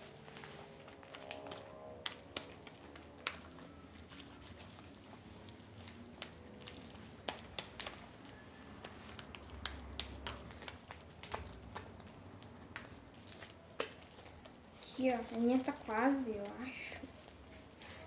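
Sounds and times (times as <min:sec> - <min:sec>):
slime squelching: 0:00.0 - 0:18.0
slime clicking: 0:05.8 - 0:14.7.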